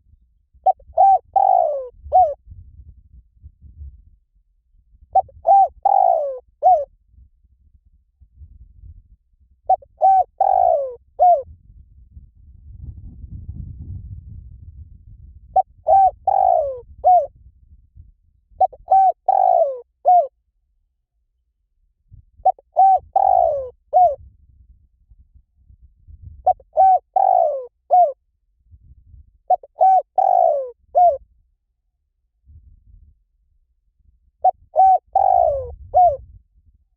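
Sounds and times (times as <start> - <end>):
dove cooing: 0.7 - 2.4, 5.2 - 6.9, 9.7 - 11.4, 15.6 - 17.3, 18.6 - 20.3, 22.4 - 24.2, 26.4 - 28.2, 29.5 - 31.2, 34.4 - 36.2.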